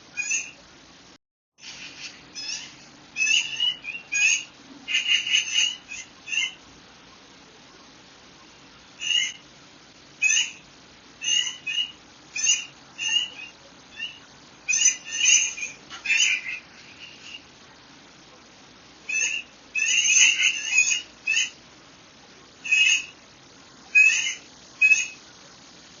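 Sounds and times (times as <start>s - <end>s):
birds chirping: 0.0s - 1.0s, 1.6s - 26.0s
faint background hiss: 0.0s - 26.0s.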